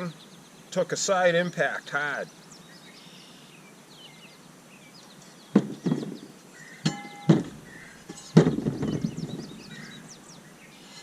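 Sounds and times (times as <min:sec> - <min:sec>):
faint birds chirping: 0:00.0 - 0:11.0
metal parts knocking and clunking: 0:05.6 - 0:09.9.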